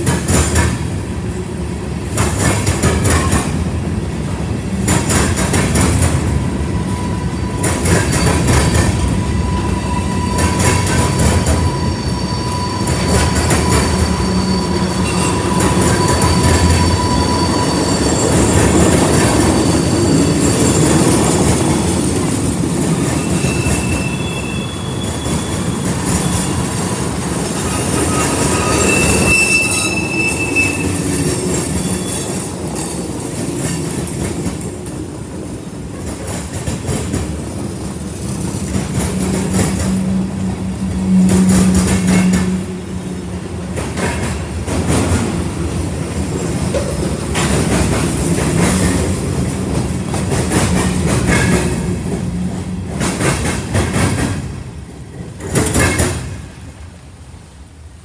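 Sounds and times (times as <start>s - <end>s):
train wheels rumbling on rails: 0.0s - 58.0s
high wheel squeals: 6.6s - 22.0s, 22.9s - 33.0s.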